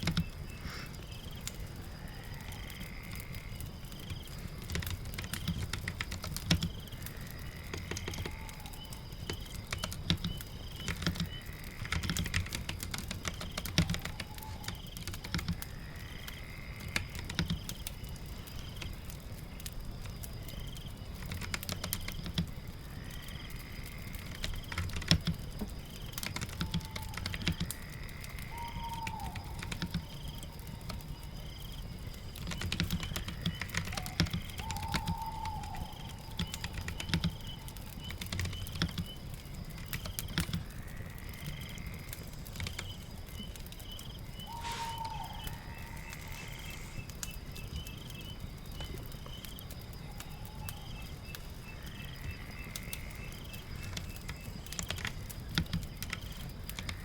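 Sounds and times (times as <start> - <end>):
typing on a keyboard: 0.0 - 0.4, 3.9 - 15.7, 16.8 - 22.6, 24.0 - 44.0, 52.7 - 57.0
fire crackling: 0.0 - 57.0
rain: 0.0 - 57.0.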